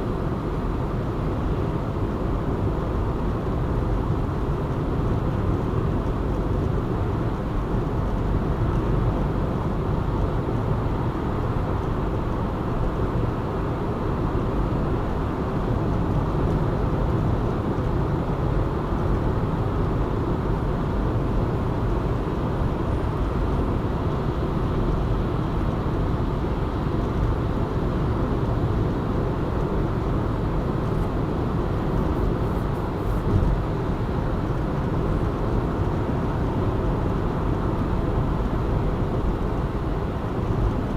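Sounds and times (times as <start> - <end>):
road and tyre noise: 0.0 - 40.9
engine hum: 18.9 - 40.9
brief knock: 33.2 - 33.6.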